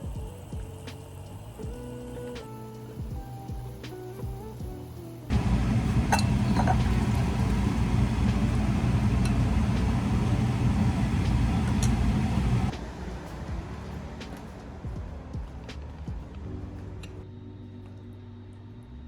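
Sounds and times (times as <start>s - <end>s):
car road and engine rumble: 5.3s - 12.8s.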